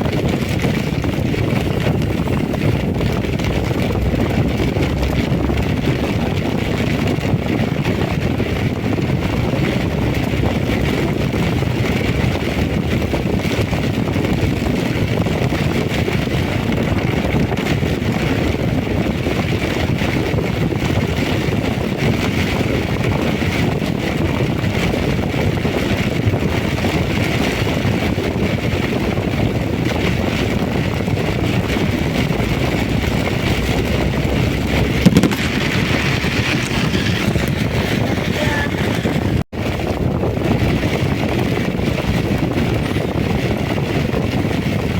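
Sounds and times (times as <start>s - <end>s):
heavy rain: 0.0s - 12.1s, 30.4s - 40.0s
wind buffeting the microphone: 0.0s - 44.9s.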